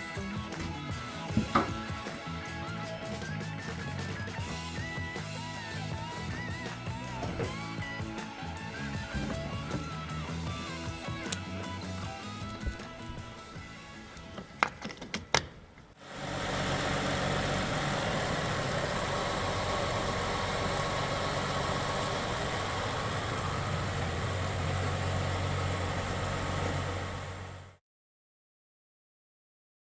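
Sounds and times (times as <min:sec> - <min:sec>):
car engine idling: 0:00.2 - 0:27.8
sharp clicks: 0:10.8 - 0:16.0.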